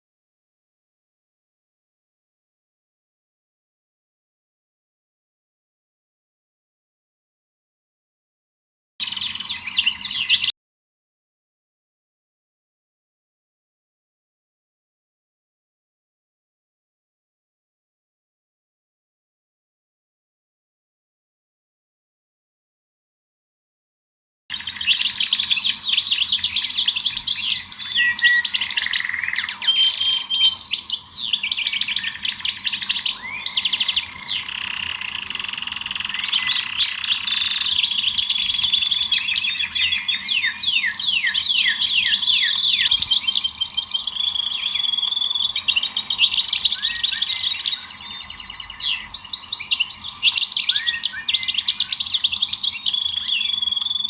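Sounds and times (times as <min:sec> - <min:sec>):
songbirds chirping and trilling: 0:09.0 - 0:10.5, 0:24.5 - 0:54.0.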